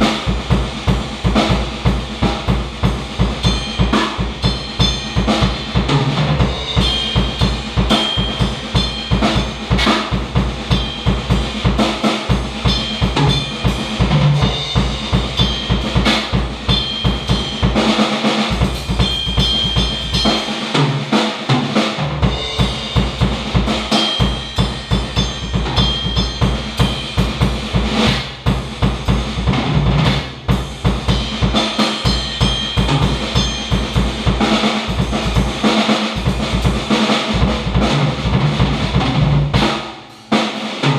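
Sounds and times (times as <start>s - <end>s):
drum kit playing: 0.0s - 40.9s.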